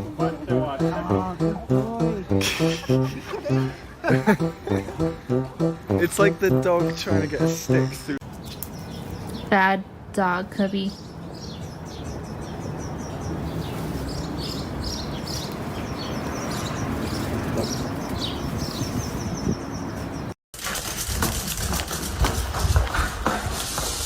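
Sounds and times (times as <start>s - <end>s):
outdoor background noise: 0.0s - 24.0s
small birds chirping: 7.0s - 20.4s.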